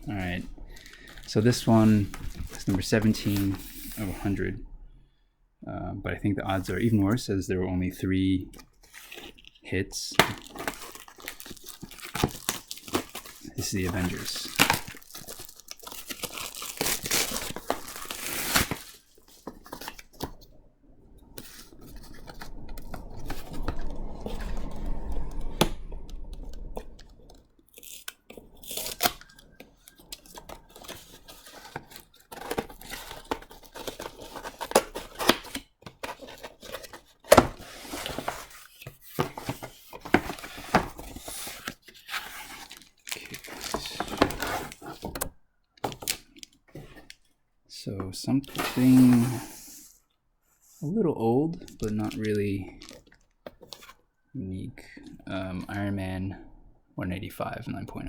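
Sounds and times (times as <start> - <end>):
packaging crinkling and rustling: 0.0 - 4.4, 8.6 - 20.6, 21.3 - 47.3, 48.4 - 50.0, 51.6 - 54.2
cardboard tearing: 10.2 - 20.4, 27.0 - 45.3, 48.5 - 49.9.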